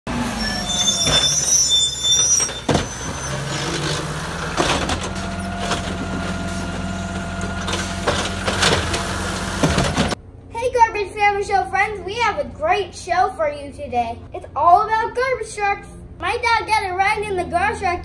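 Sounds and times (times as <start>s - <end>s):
high squeal: 0.1s - 4.2s
garbage truck engine running: 0.1s - 10.2s
sharp knocks and clanks: 7.4s - 10.2s.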